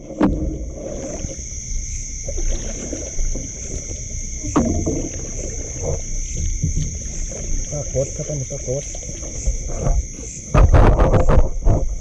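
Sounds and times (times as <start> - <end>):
crickets chirping: 0.0 - 12.0
low rumbling water: 0.0 - 12.0.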